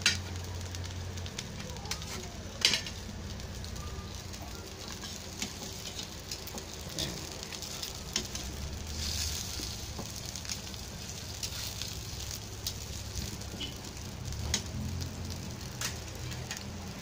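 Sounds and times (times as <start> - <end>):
meat sizzling in a pan: 0.0 - 17.0
metal tongs clicking on pan: 1.9 - 3.0, 4.9 - 8.5, 14.4 - 14.7, 15.7 - 16.7.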